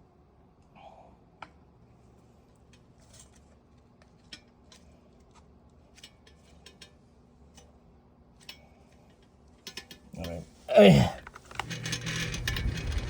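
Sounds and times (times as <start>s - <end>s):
faint clicks and metal taps: 2.5s - 7.8s, 8.4s - 10.4s.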